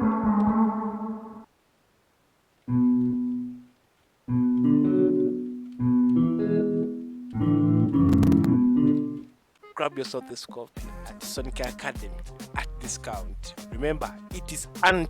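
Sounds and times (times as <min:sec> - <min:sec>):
synthesizer guitar chords: 0:00.0 - 0:01.5, 0:02.7 - 0:03.6, 0:04.3 - 0:09.3.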